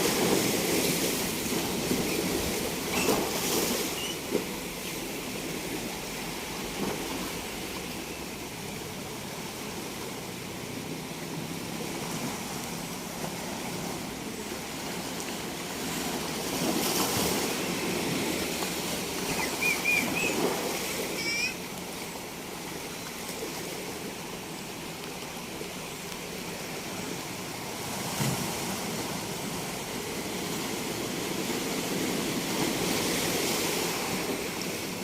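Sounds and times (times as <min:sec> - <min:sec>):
ocean waves washing onto beach: 0:00.0 - 0:35.0
short high chirps: 0:19.3 - 0:20.4, 0:21.2 - 0:21.6.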